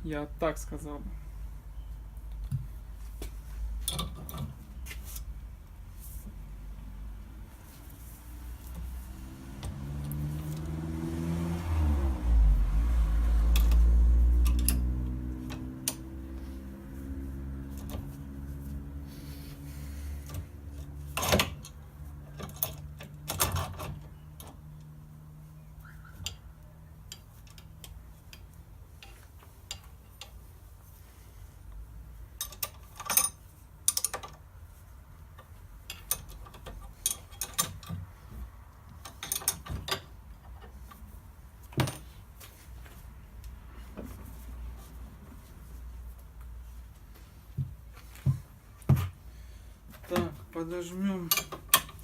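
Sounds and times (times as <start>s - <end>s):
low motor hum: 8.6s - 21.0s
metal tools clinking and knocking: 32.4s - 34.4s, 35.8s - 38.0s, 39.0s - 40.7s, 51.1s - 52.0s.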